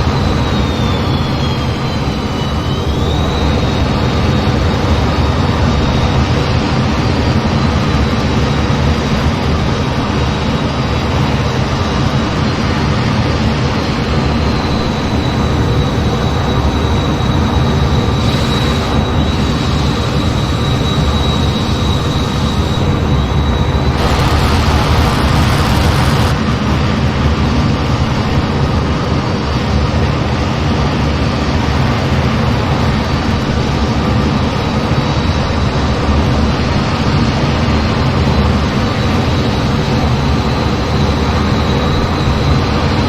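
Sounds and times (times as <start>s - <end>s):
jet engine and airflow rumble: 0.0s - 43.0s
thin high whine: 14.4s - 26.6s
burst of hiss: 17.2s - 22.9s, 24.0s - 26.4s.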